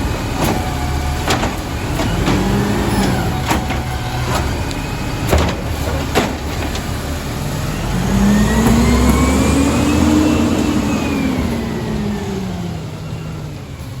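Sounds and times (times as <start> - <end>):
garbage truck engine revving: 0.0 - 14.0
sharp knocks: 5.3 - 7.0.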